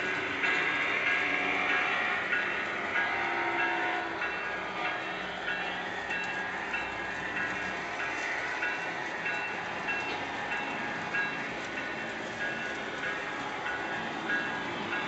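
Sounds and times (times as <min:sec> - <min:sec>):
model train locomotive and rail noise: 0:00.0 - 0:15.0.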